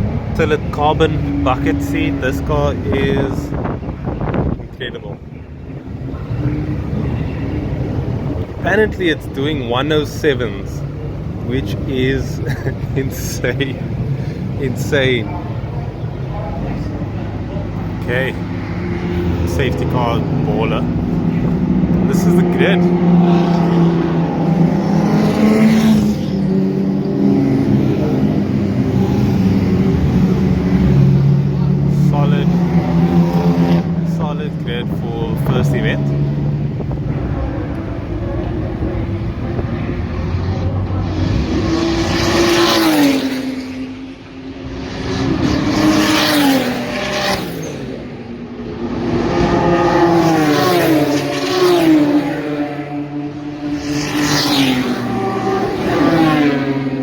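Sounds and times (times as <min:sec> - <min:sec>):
race car engines idling: 0:00.0 - 0:42.3.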